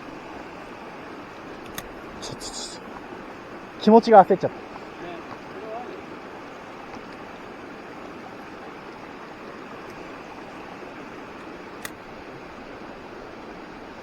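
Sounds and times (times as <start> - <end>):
stream water flowing: 0.0 - 14.0
sharp click: 1.6 - 2.0, 11.8 - 12.0.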